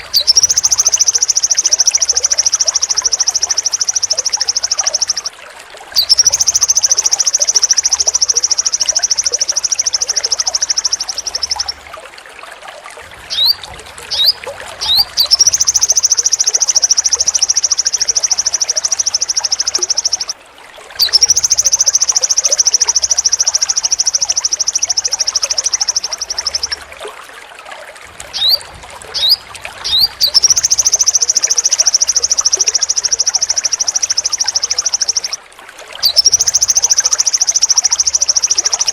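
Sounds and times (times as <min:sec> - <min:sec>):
bird rasping trills: 0:00.0 - 0:05.2, 0:06.0 - 0:11.7, 0:13.3 - 0:20.2, 0:21.0 - 0:26.8, 0:28.4 - 0:35.3.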